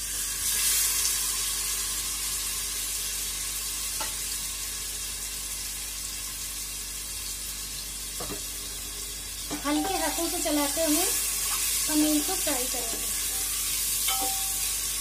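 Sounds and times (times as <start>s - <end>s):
cheese cubes sizzling in hot oil: 0.0s - 15.0s.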